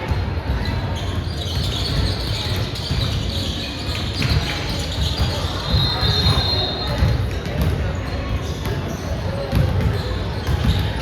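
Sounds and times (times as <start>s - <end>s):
crowd chatter: 0.0s - 11.0s
basketballs bouncing on hardwood: 9.4s - 11.0s.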